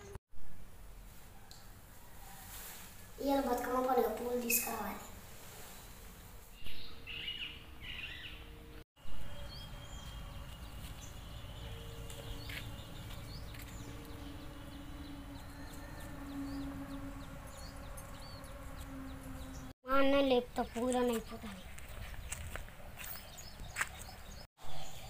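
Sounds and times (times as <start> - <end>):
small birds chirping: 3.2 - 5.1, 9.2 - 25.0.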